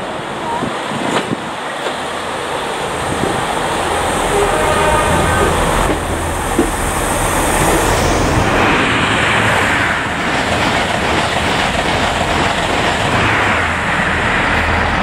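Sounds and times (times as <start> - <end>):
diesel train engine rumble: 0.0 - 15.0
train wheels clicking: 5.4 - 8.8, 9.4 - 15.0.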